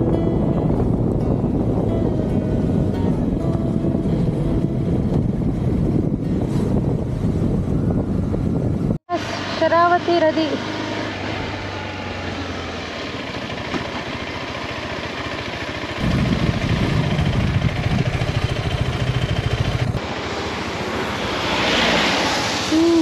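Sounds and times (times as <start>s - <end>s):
wind noise: 0.0s - 9.1s, 16.0s - 20.1s
motorcycle engine: 0.0s - 23.0s.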